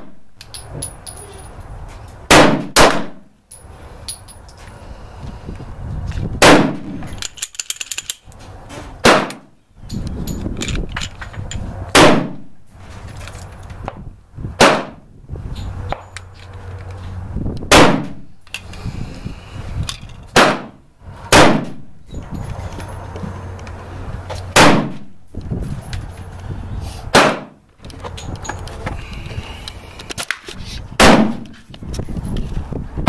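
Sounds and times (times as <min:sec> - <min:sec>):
pistol shots: 0:02.3 - 0:03.2, 0:06.4 - 0:07.0, 0:09.0 - 0:09.5, 0:11.9 - 0:12.4, 0:14.6 - 0:15.0, 0:17.7 - 0:18.2, 0:20.4 - 0:21.8, 0:24.5 - 0:25.1, 0:27.1 - 0:27.6, 0:31.0 - 0:31.4.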